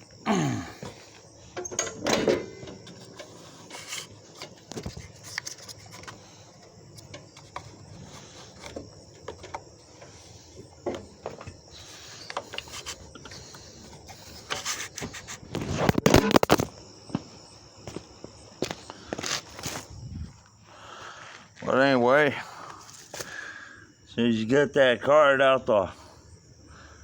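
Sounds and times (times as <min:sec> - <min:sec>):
clicks and scrapes of hand work: 0:01.6 - 0:06.2, 0:12.2 - 0:16.7.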